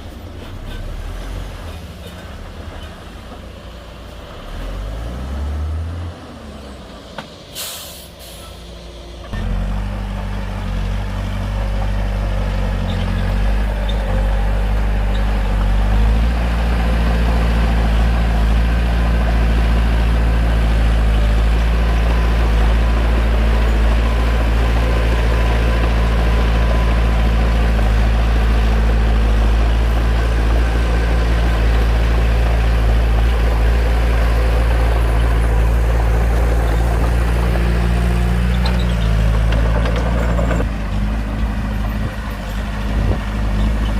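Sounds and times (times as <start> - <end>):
bulldozer diesel engine: 0.0 - 43.9
short sharp hiss: 7.5 - 8.7.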